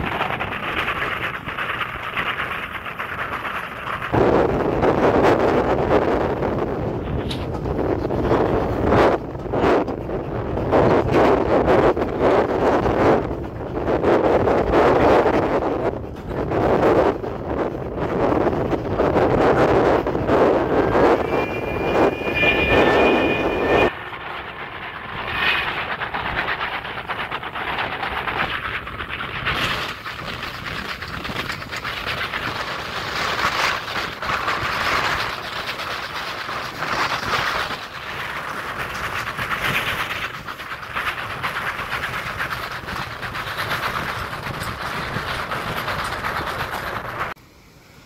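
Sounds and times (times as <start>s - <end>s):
train wheels rumbling on rails: 0.0s - 47.5s
rushing air: 4.1s - 35.4s.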